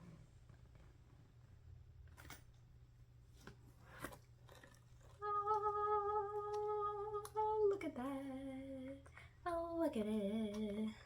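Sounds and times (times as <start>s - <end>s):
woman humming: 5.2s - 9.6s.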